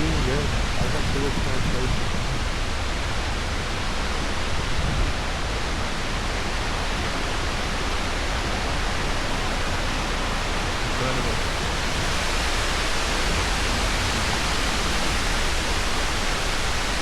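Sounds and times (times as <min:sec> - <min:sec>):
wind and water rushing: 0:00.0 - 0:17.0
wind buffeting microphone: 0:00.0 - 0:17.0.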